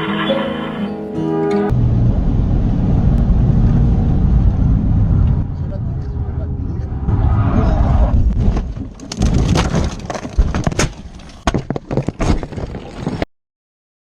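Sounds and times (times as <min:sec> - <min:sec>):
road and engine rumble: 0:01.5 - 0:12.0
car crash bangs and crunches: 0:08.2 - 0:13.3.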